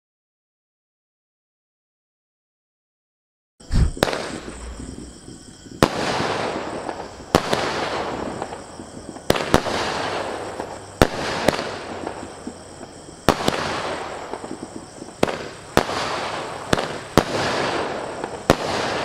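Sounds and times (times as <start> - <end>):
crackling hiss of fireworks: 3.6 - 19.0
firework bangs: 3.6 - 19.0
low firework thump: 3.7 - 6.0.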